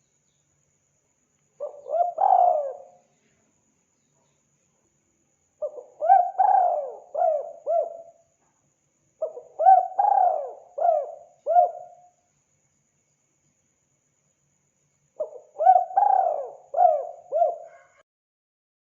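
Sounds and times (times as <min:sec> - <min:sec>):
dove cooing: 0:01.6 - 0:03.0, 0:05.6 - 0:08.2, 0:09.2 - 0:12.0, 0:15.2 - 0:18.0.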